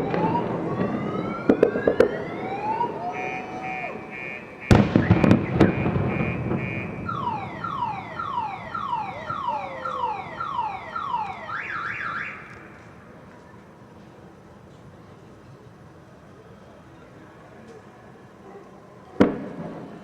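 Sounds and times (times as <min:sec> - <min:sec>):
firework boom rumbling: 0:00.0 - 0:10.1
car alarm whooping and warbling: 0:00.0 - 0:12.5.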